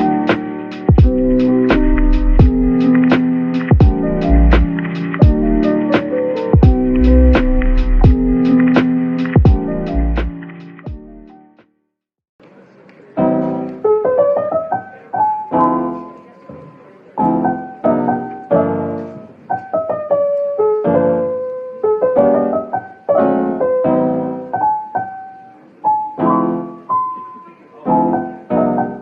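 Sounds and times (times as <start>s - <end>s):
slow piano piece: 0.0s - 11.6s, 12.4s - 29.0s.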